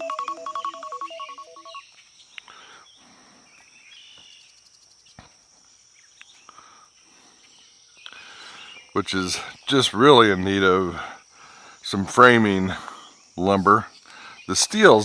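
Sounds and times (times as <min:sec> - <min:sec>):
phone alarm melody: 0:00.0 - 0:01.8.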